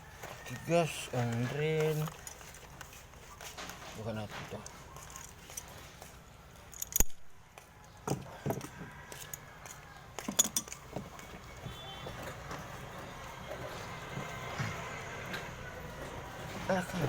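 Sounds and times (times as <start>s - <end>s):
knocks and metallic clinks: 6.6s - 7.3s, 10.2s - 12.7s.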